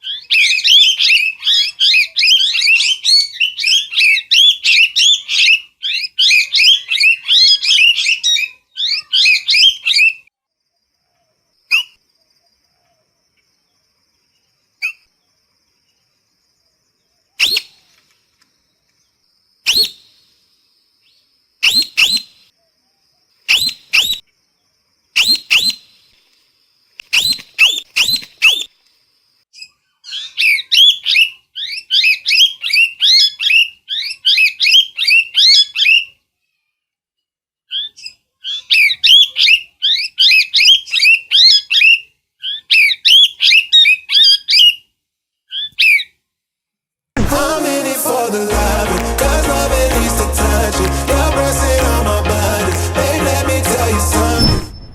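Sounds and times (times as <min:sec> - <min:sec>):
parrot chirping calls: 0:00.0 - 0:10.2.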